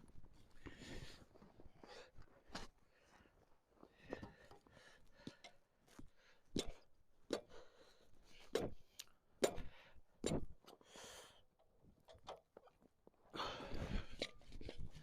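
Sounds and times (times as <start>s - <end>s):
knocks and clunks of objects: 9.4s - 10.7s.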